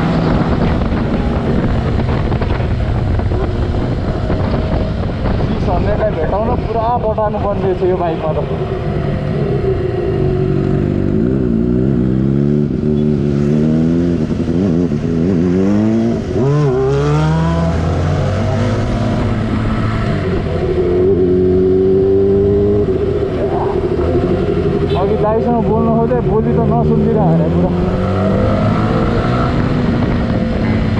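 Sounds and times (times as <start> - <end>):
motorcycle engine accelerating: 0.0 - 30.9
wind and road noise: 0.0 - 30.9.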